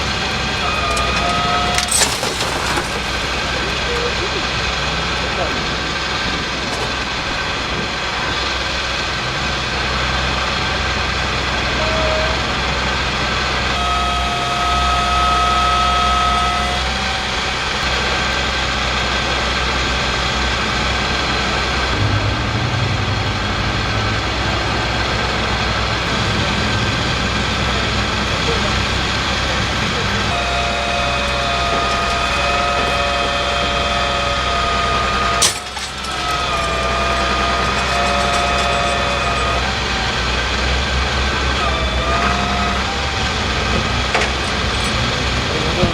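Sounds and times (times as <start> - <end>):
heavy truck engine running: 0.0 - 45.9
high whine: 0.0 - 45.9.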